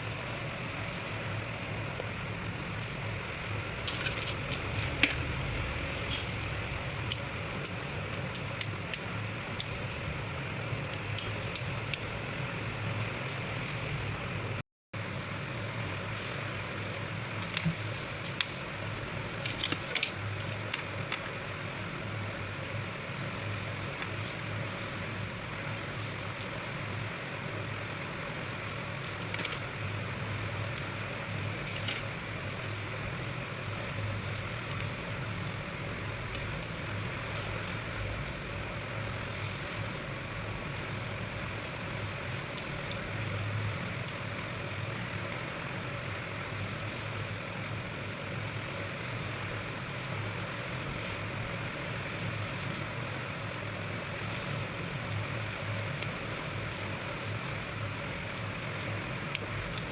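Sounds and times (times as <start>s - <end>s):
low hum: 0.0s - 14.6s.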